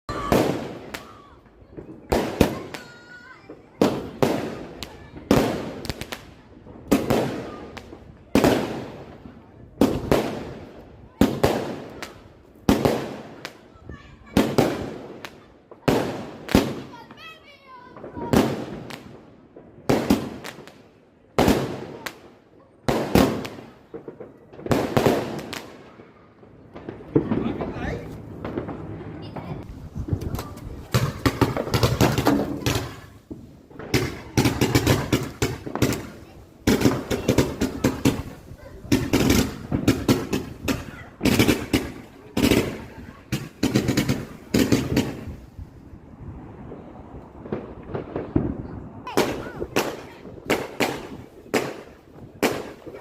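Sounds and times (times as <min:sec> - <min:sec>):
fireworks bangs: 0:00.1 - 0:53.0
small firework cracks: 0:00.1 - 0:53.0.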